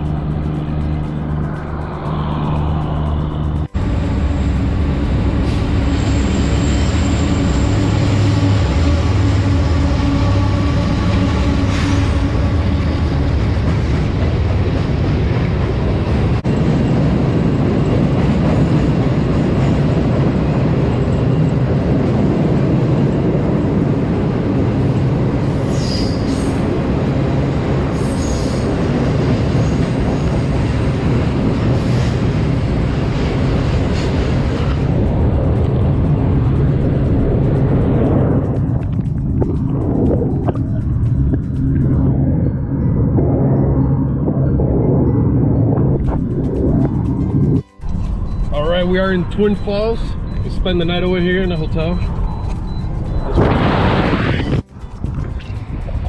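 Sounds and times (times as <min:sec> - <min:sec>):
vehicle driving on highway: 0:00.0 - 0:56.0.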